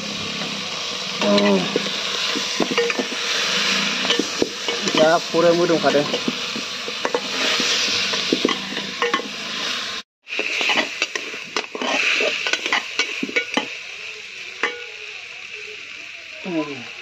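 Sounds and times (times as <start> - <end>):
meat sizzling in a pot: 0.0 - 17.0
metal spoon scraping a pot: 1.2 - 5.2, 5.8 - 9.8, 10.4 - 13.7.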